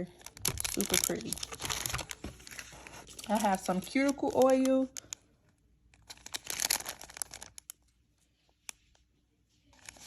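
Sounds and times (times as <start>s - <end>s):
packaging crinkling: 0.0s - 5.3s, 5.9s - 8.0s, 9.7s - 10.0s.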